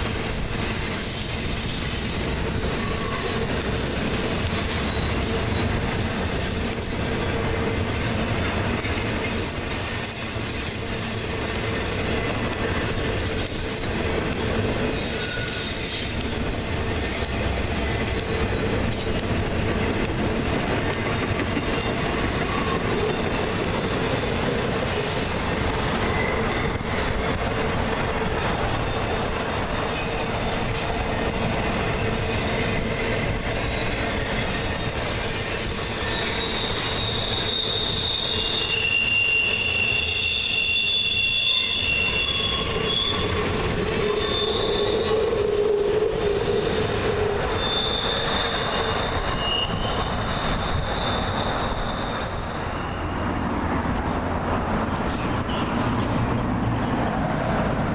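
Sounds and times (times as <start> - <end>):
freight train cars rumbling past: 0.0 - 57.9
wheels squealing: 1.0 - 7.0, 8.9 - 14.0, 14.8 - 17.4, 21.7 - 27.2, 33.7 - 45.5, 46.3 - 53.4.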